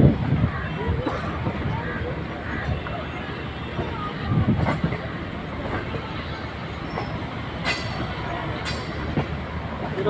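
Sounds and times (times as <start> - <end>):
train wheels rumbling on rails: 0.0 - 10.0
sharp clacks of train wheels: 3.6 - 10.0.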